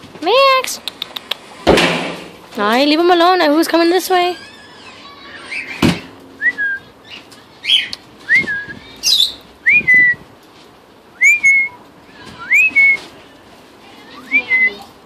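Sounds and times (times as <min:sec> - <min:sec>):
sharp knock: 0:01.7 - 0:02.4
parrot harsh chirps: 0:04.4 - 0:05.8, 0:08.9 - 0:09.5, 0:11.2 - 0:11.8
parrots whistling: 0:04.4 - 0:06.9, 0:07.6 - 0:10.2, 0:11.2 - 0:11.8, 0:12.4 - 0:13.0.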